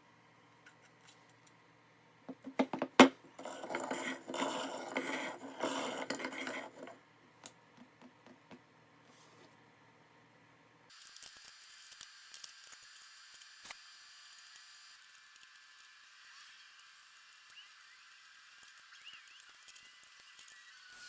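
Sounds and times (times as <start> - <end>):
metal scraping and rattling: 3.4 - 7.0.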